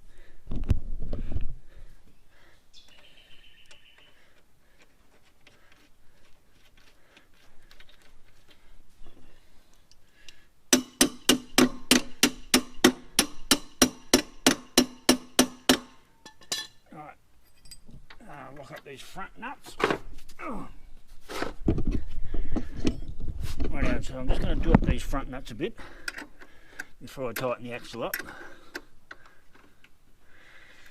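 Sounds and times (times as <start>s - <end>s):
hammer tapping on metal: 10.7s - 16.7s.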